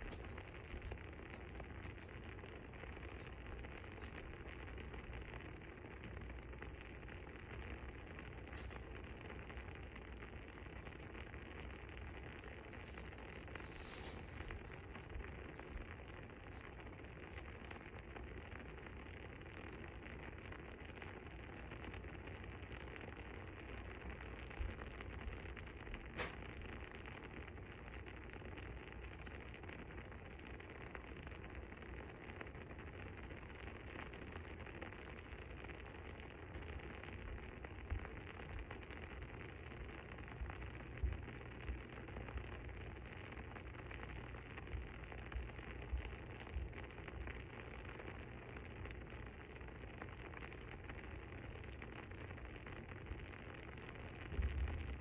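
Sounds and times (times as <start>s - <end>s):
fire crackling: 0.0s - 55.0s
fire pops: 0.0s - 55.0s.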